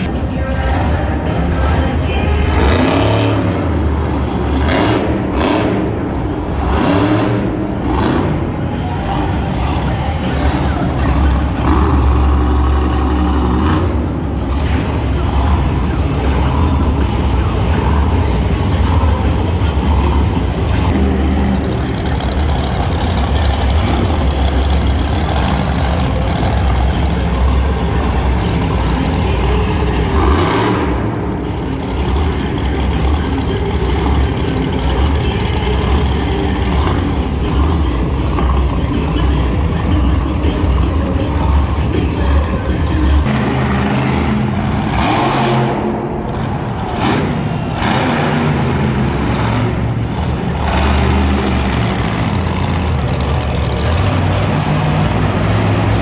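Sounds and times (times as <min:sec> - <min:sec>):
monster truck engines rumbling: 0:00.0 - 0:56.0.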